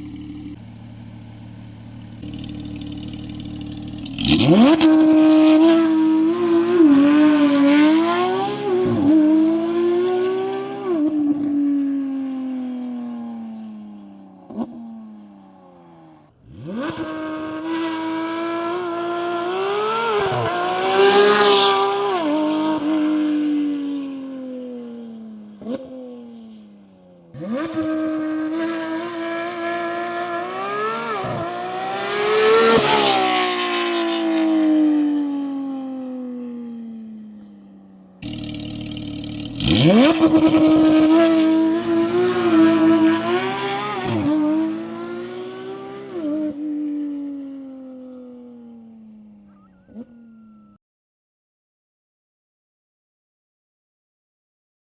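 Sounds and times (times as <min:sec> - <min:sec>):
exhaust cracks: 0:00.0 - 0:06.3, 0:38.2 - 0:44.5
high-revving car engine passing: 0:00.0 - 0:50.7.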